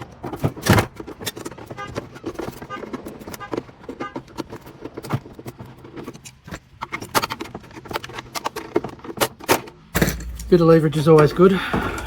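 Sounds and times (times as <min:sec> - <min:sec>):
metallic clanks: 0:09.3 - 0:12.0.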